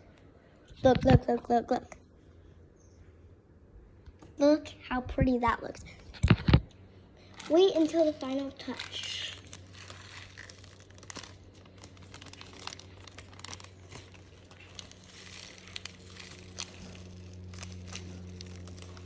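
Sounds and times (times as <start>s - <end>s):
low hum: 0.0s - 19.0s
slime crackling and popping: 7.3s - 19.0s.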